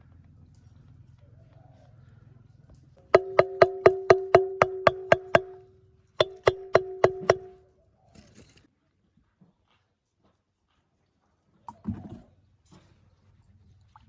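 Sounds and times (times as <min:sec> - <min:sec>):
ringing strikes on metal: 0:03.2 - 0:05.6, 0:06.2 - 0:07.5.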